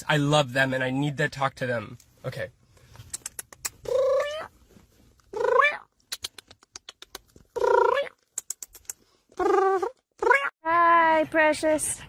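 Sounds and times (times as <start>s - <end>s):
cat meowing: 3.9s - 4.5s.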